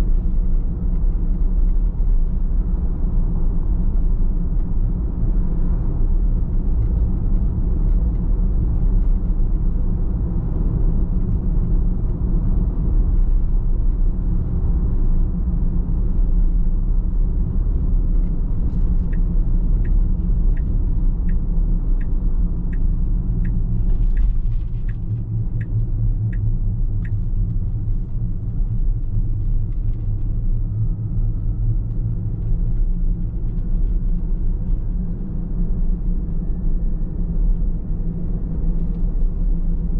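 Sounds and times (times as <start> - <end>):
car road and engine rumble: 0.0 - 39.9
turn signal ticking: 18.2 - 27.6.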